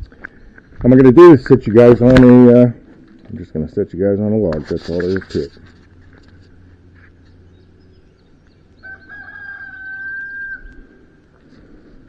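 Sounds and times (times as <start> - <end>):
long high-pitched bird call: 7.5 - 11.2.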